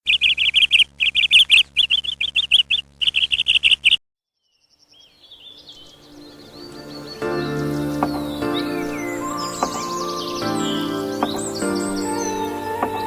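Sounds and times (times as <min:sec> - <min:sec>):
small bird chirping rapidly: 0:00.0 - 0:13.0
faint gliding whistles: 0:05.5 - 0:13.0.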